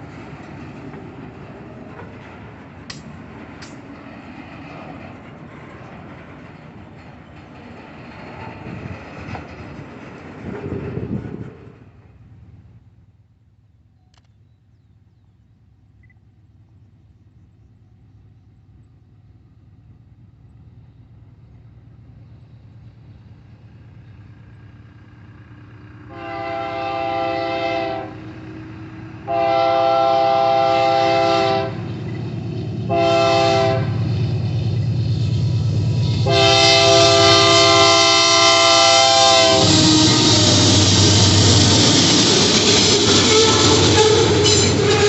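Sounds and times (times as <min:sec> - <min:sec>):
train rumbling: 0:00.0 - 0:45.0
train horn blasts: 0:26.1 - 0:28.3, 0:29.2 - 0:31.9, 0:32.9 - 0:34.1, 0:36.2 - 0:41.1, 0:43.1 - 0:45.0.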